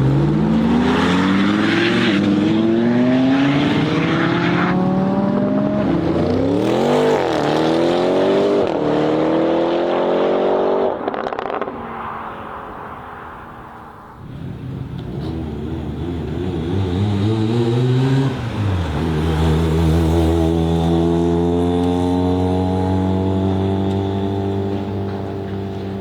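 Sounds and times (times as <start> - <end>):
supercar engine accelerating: 14.2 - 26.0.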